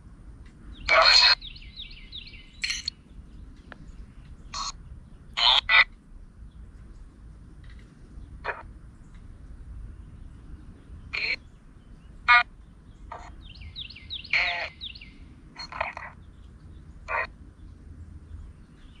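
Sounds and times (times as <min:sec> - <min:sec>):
birds calling harshly: 0:00.7 - 0:06.0, 0:10.8 - 0:19.0
falling bird chirps: 0:01.3 - 0:02.9.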